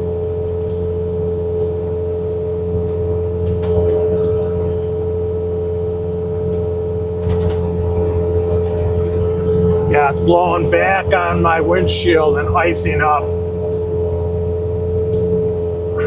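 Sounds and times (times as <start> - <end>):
loader engine droning: 0.0 - 16.0
snowblower whine: 5.9 - 16.0.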